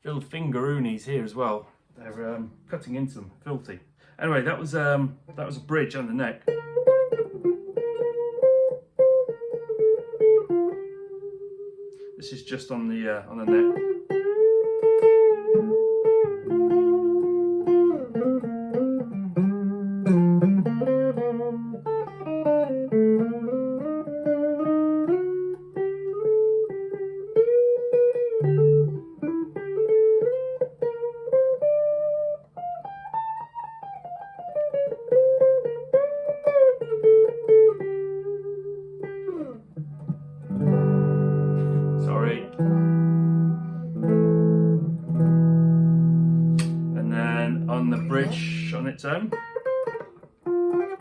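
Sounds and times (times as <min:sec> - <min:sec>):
clean electric guitar melody: 0:04.6 - 0:12.2, 0:12.9 - 0:51.0
guitar chord strummed: 0:13.3 - 0:51.0.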